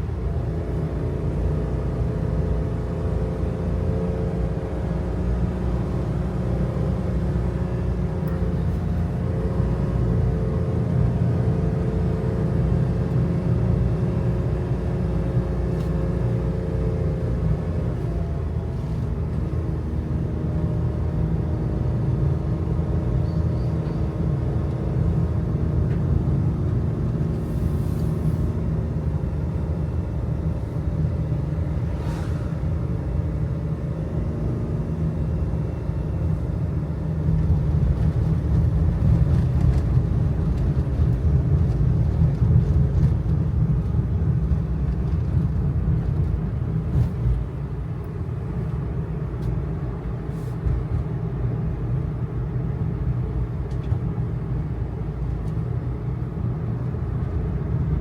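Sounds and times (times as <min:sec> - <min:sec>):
road and tyre rumble: 0:00.0 - 0:58.0.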